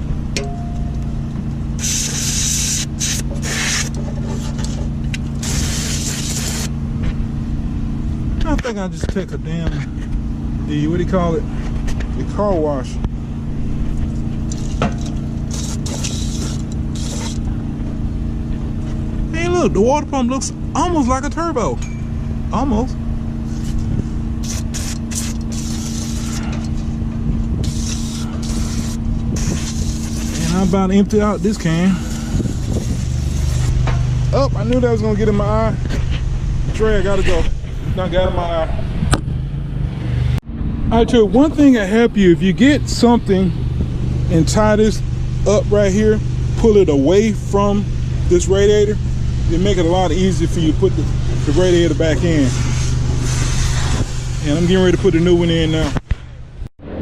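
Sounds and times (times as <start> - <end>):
steady low hum: 0.0 - 57.0
aerosol spray can hissing: 1.8 - 4.0, 5.4 - 6.7, 15.4 - 17.5, 24.4 - 26.5, 27.6 - 30.7, 31.4 - 33.8, 52.4 - 54.4.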